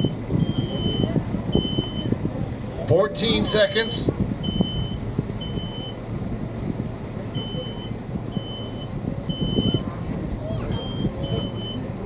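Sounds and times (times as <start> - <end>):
smoke alarm beeping: 7.4 - 9.8.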